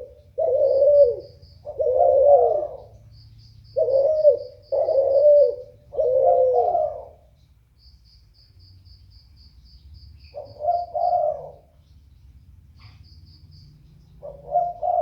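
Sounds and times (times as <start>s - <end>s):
dove cooing: 0.0s - 3.1s, 3.7s - 7.3s, 10.3s - 11.8s, 14.2s - 15.0s.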